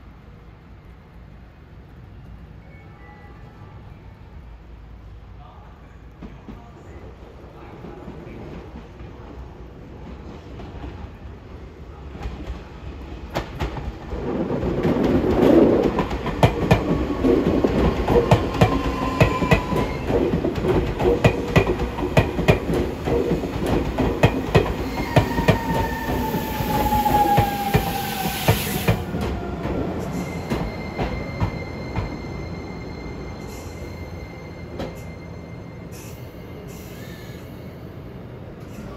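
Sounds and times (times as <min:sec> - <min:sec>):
train high hum: 0:00.0 - 0:38.9
air hiss: 0:26.2 - 0:29.1.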